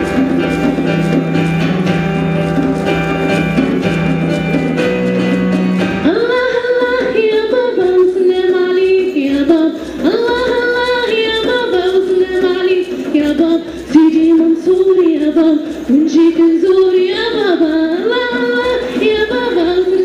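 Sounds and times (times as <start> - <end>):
woman singing high melody: 6.0 - 20.0.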